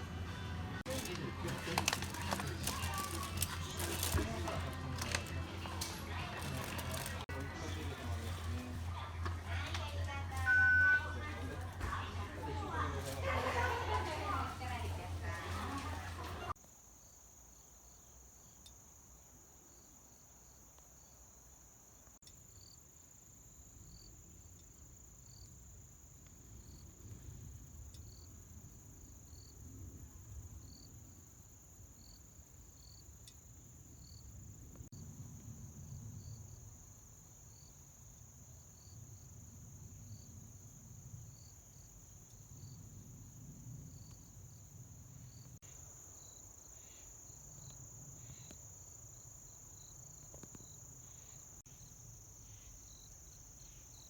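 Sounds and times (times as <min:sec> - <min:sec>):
high insect trill: 0:16.5 - 0:54.0.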